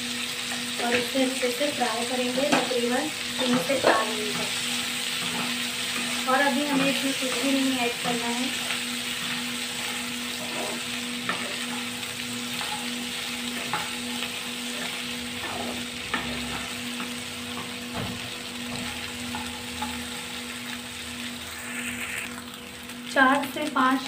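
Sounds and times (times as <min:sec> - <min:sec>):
vegetables sizzling in hot oil: 0:00.0 - 0:24.0
wooden spatula scraping pan: 0:03.4 - 0:11.9, 0:14.7 - 0:16.7.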